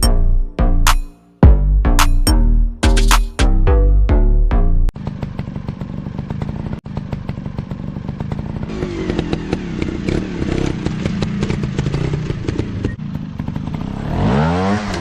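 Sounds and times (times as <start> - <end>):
music: 0.0 - 4.9
off-road motorcycle engines: 5.0 - 15.0.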